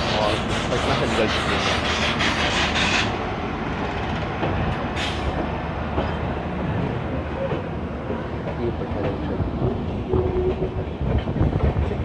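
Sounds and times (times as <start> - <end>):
train rumbling along track: 0.0 - 12.0.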